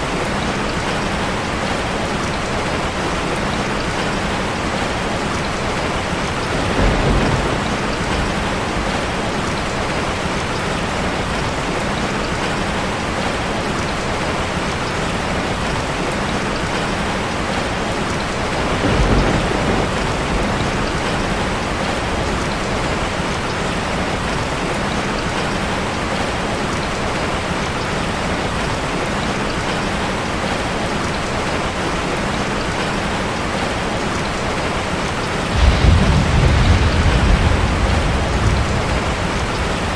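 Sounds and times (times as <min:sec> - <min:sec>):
heavy rain on a metal roof: 0:00.0 - 0:39.9
low rumbles: 0:35.5 - 0:39.9.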